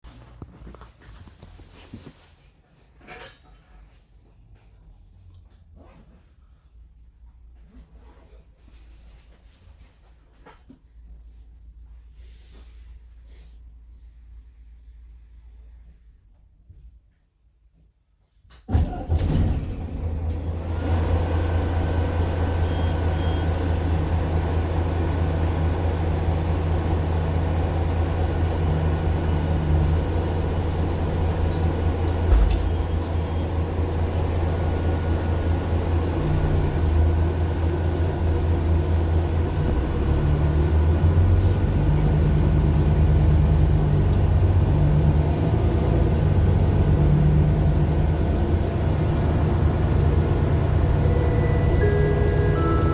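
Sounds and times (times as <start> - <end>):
bus diesel engine droning: 18.8 - 52.9.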